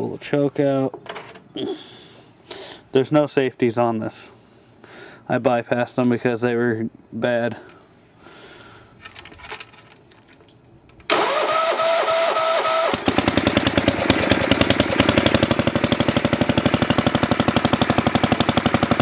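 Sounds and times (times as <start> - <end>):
electric starter cranking: 11.1 - 19.0
tractor engine running: 11.1 - 19.0.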